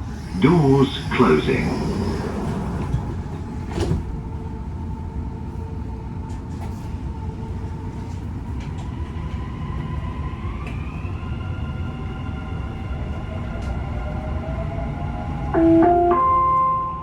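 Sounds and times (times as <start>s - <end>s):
train carriage rumble: 0.0s - 17.0s.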